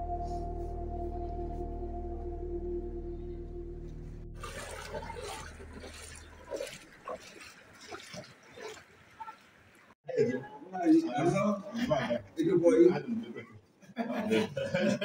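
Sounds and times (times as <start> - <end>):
bell-like music drone: 0.0 - 4.4
water splashing: 4.2 - 10.0.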